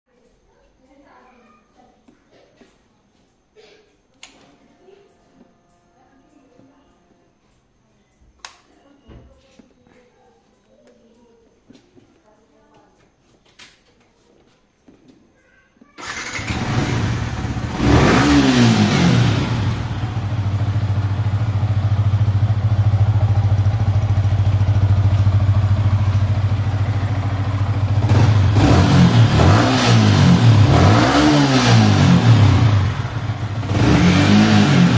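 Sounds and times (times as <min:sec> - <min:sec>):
motorcycle engine starting and idling: 0:16.0 - 0:34.9.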